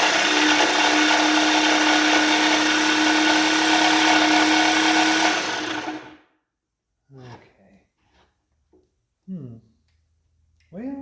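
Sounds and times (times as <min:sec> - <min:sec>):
small power tool whining: 0:00.0 - 0:06.2.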